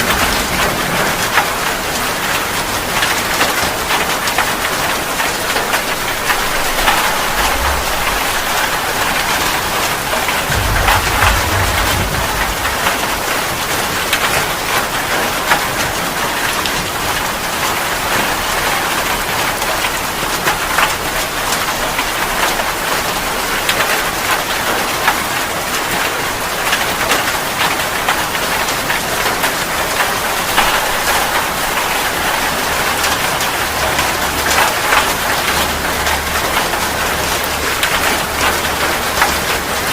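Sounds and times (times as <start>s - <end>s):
steady rain: 0.0s - 39.9s
low rumble: 5.6s - 14.6s.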